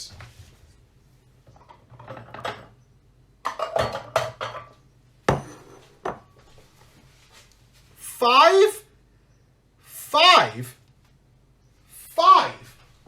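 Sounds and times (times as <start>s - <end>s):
dishes and utensils clattering: 1.5s - 2.8s, 3.4s - 6.3s.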